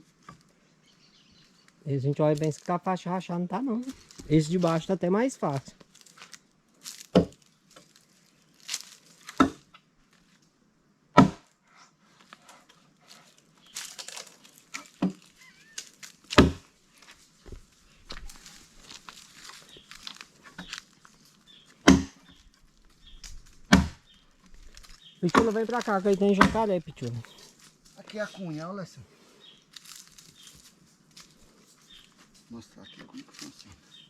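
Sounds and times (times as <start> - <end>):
axe chopping firewood log: 7.0 - 7.4, 9.3 - 9.7, 11.2 - 11.5, 16.3 - 16.7, 21.8 - 22.4, 23.5 - 24.0, 24.8 - 26.8
faint rustling: 11.6 - 34.0.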